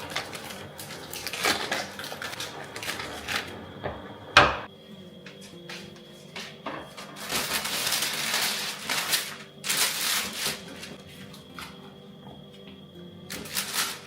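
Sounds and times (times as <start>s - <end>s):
crinkly rustling and crushing: 0.0s - 4.4s, 6.5s - 11.9s, 13.3s - 14.0s.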